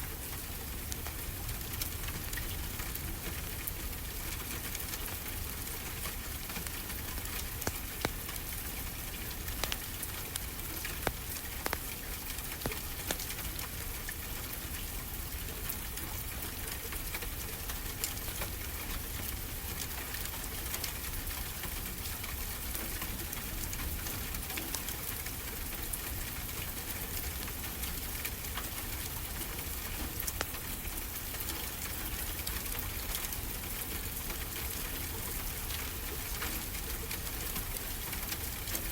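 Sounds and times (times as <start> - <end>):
wood fire crackling: 0.1 - 15.4.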